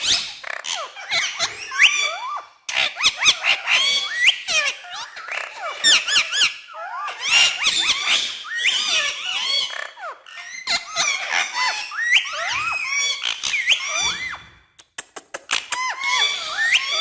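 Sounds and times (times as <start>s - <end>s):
parrot chattering and whistling: 15.2s - 17.0s.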